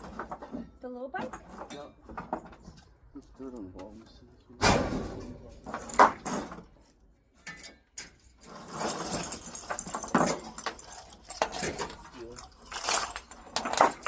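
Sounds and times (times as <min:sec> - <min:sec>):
metal rattling and knocking: 0:00.0 - 0:03.0, 0:04.6 - 0:14.0
scrap metal clanking: 0:04.6 - 0:14.0.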